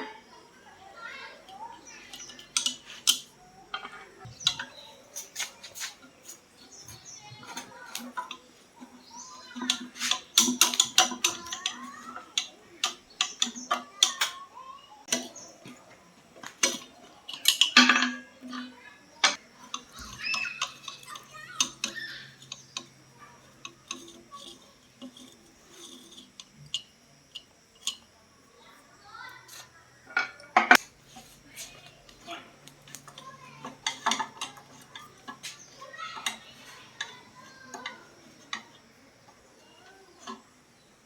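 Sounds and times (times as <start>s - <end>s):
metal tools clinking: 1.4s - 8.5s, 16.5s - 28.1s.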